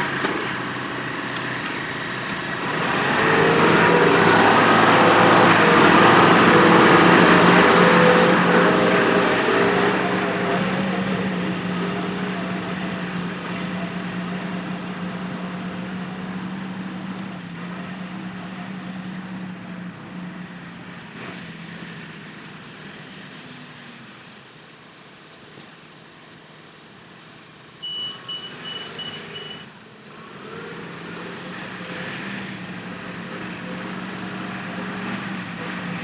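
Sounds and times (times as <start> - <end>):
tractor engine running: 0.0 - 20.7.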